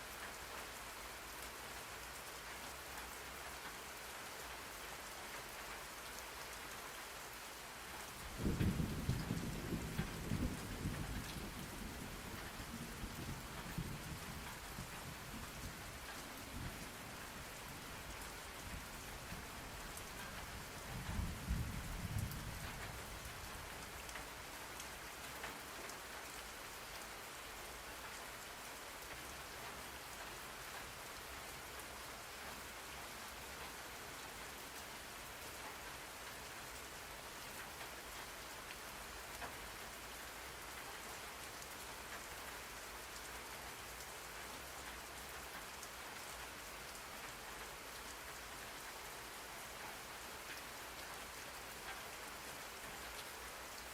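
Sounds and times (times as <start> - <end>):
rain falling: 0.0 - 53.9
low rumble of thunder: 8.3 - 19.8, 20.4 - 24.0.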